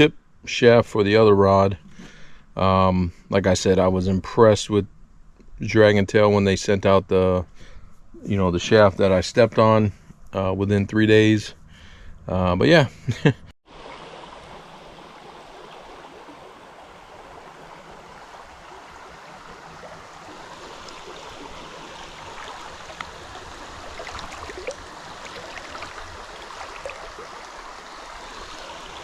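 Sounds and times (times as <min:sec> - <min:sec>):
small creek flowing: 0:13.7 - 0:29.0.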